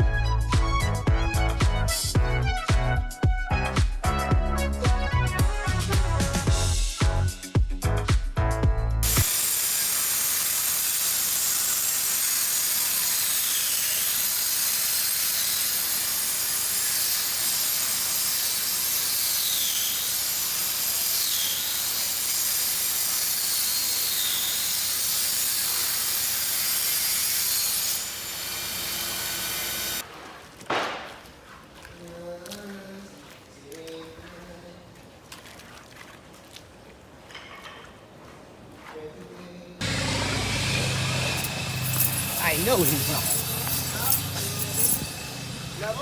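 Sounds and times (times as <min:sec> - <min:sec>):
power tool whining: 0:09.0 - 0:30.0, 0:39.8 - 0:46.0.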